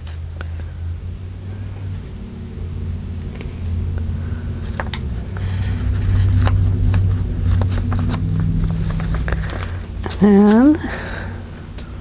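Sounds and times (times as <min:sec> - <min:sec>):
steady low hum: 0:00.0 - 0:12.0
paper being handled: 0:04.6 - 0:11.0.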